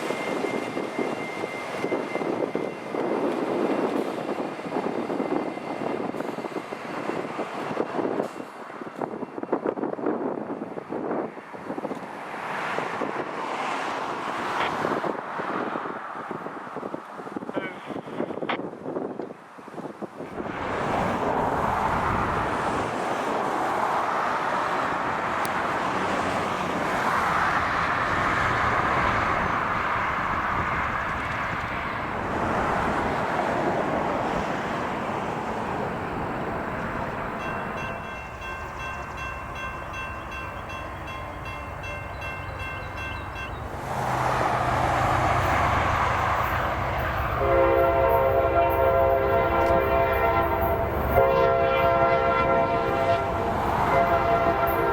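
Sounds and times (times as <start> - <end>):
diesel locomotive drone: 0.0 - 54.9
crossing bell ringing: 37.2 - 43.7, 46.4 - 54.9.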